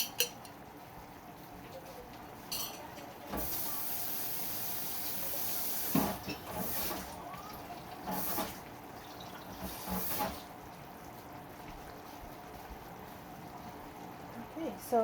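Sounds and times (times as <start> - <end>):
sauce simmering in a pan: 3.5 - 15.0.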